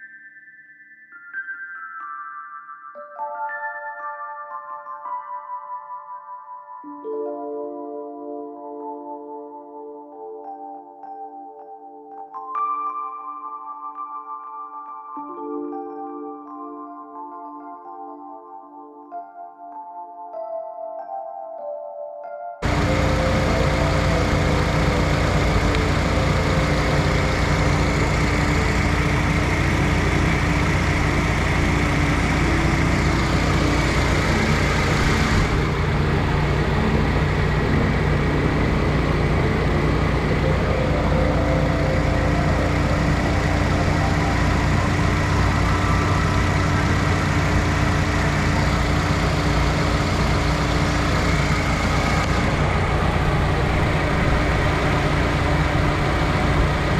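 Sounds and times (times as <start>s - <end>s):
truck engine idling: 22.6s - 56.9s.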